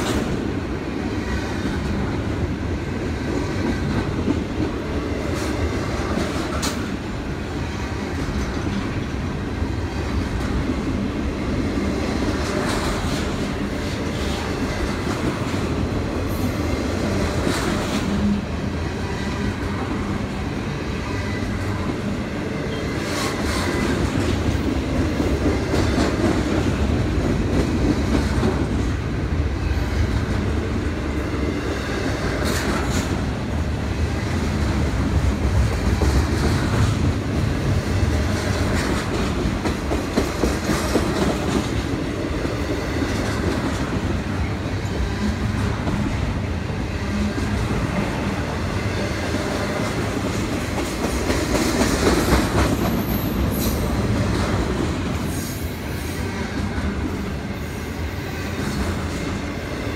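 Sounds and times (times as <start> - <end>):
freight train wheels rumbling: 0.0 - 59.9
sharp train clanks: 0.0 - 59.9.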